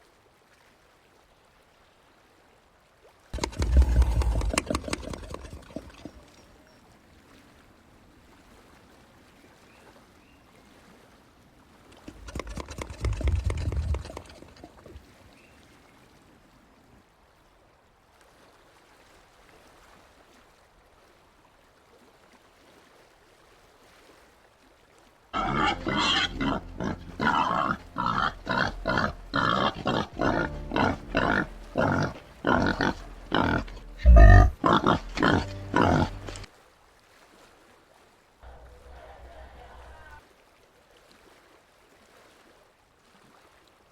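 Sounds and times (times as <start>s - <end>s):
peccaries grunting: 3.4s - 6.4s, 12.0s - 15.0s, 25.4s - 36.5s.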